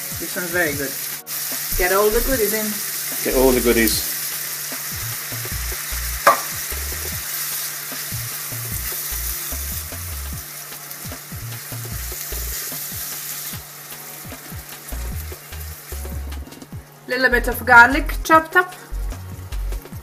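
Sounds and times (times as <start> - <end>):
food sizzling in a frying pan: 0.0 - 20.0
sharp knock: 6.2 - 6.6.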